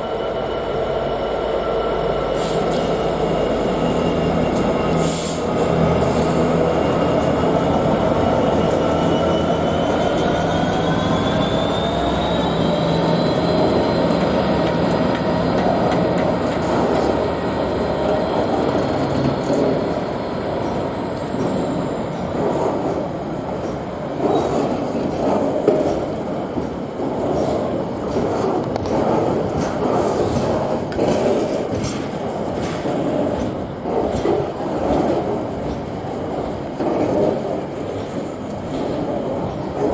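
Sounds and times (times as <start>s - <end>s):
train wheels clattering over rail joints: 23.6s - 39.9s.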